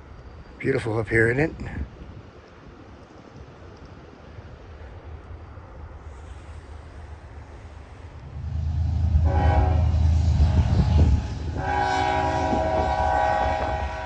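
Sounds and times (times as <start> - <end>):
diesel locomotive rumble: 5.5 - 14.0
locomotive air horn blasts: 8.7 - 14.0.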